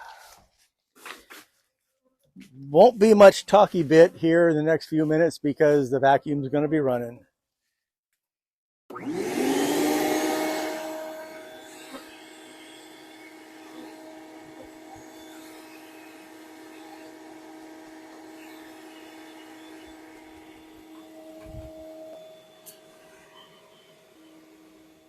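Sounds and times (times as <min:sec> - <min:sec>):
vacuum motor humming: 0:08.9 - 0:25.0.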